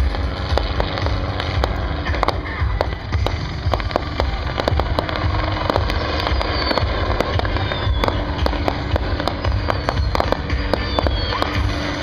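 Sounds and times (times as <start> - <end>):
fireworks crackling: 0.0 - 12.0
low rumble: 0.0 - 12.0
falling firework whistles: 3.9 - 12.0.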